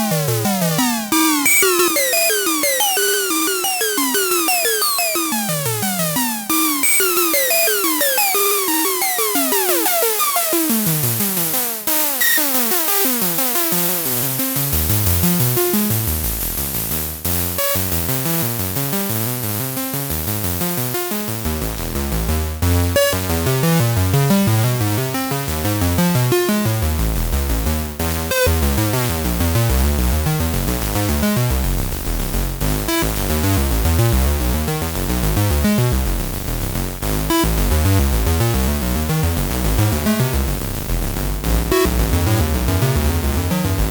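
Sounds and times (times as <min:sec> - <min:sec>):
synthesizer playing fast repeating notes: 0:00.0 - 0:11.4, 0:21.8 - 0:43.9
deep bass line: 0:21.5 - 0:43.9.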